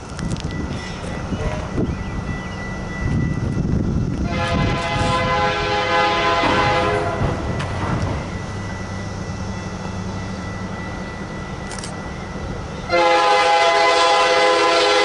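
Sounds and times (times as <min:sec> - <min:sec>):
locomotive air horn blast: 0:04.2 - 0:07.5, 0:12.9 - 0:15.0.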